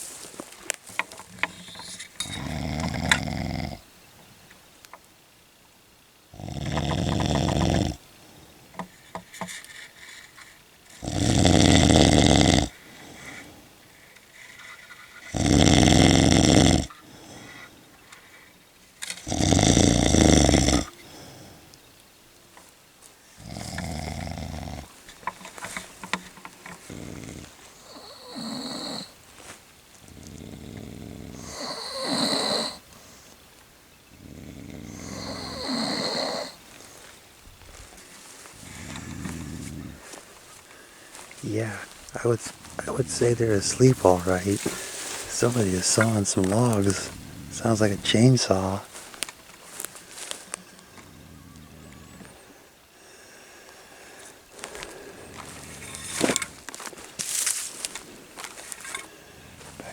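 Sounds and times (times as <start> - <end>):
person snoring heavily: 1.4 - 3.8, 6.3 - 8.0, 11.0 - 13.6, 15.3 - 17.8, 19.2 - 21.6, 23.3 - 25.0, 26.8 - 29.2, 30.1 - 33.2, 34.2 - 37.1, 38.6 - 50.3.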